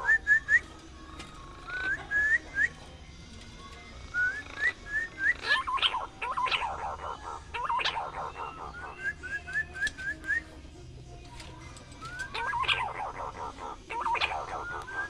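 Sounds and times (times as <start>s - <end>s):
green pigeon whistling calls: 0.0s - 0.8s, 1.6s - 2.8s, 4.1s - 10.5s, 12.0s - 15.0s.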